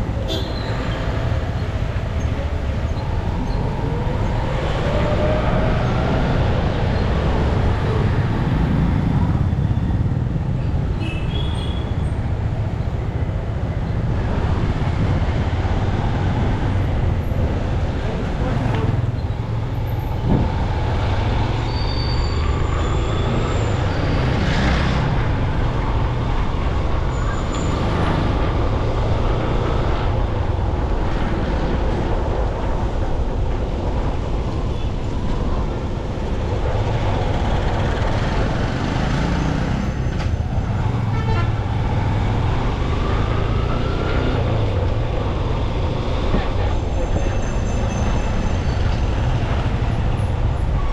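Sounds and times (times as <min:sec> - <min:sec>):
motorcycle engine and road rumble: 0:00.0 - 0:50.9
vehicle horns honking: 0:00.3 - 0:00.8, 0:11.0 - 0:12.0, 0:41.0 - 0:41.6
vehicles pulling away: 0:12.1 - 0:50.9.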